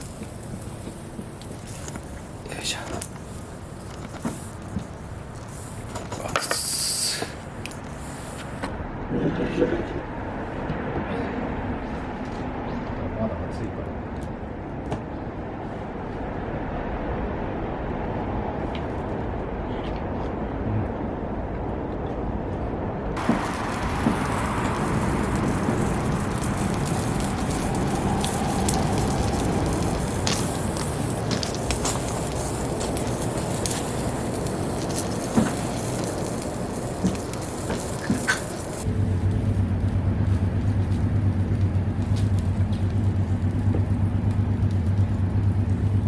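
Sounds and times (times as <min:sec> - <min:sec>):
wood fire crackling: 0:00.0 - 0:08.6, 0:23.2 - 0:46.0.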